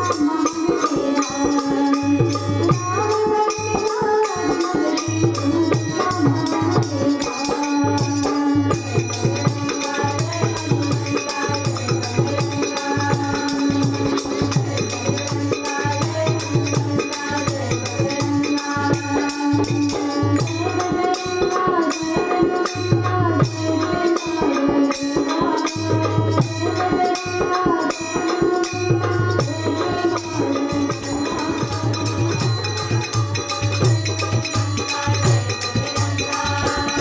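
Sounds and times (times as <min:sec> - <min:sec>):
small cymbals jingling: 0:00.0 - 0:37.0
steady drum beat: 0:00.0 - 0:37.0.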